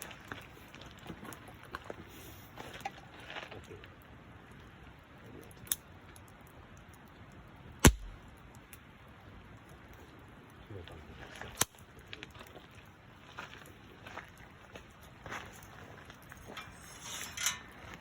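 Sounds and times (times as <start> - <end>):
campfire crackling: 0.0 - 18.0
sharp knock: 7.9 - 8.1.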